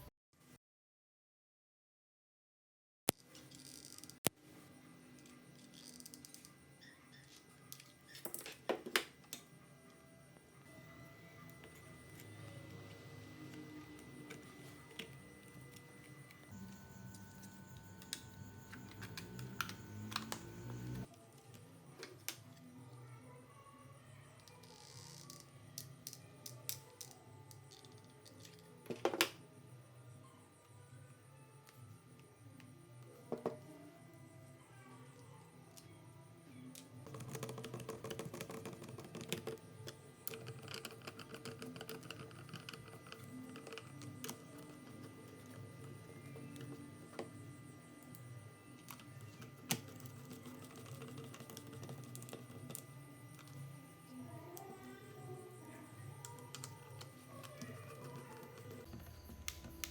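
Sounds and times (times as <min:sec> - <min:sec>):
low steady hum: 0:09.7 - 0:21.7.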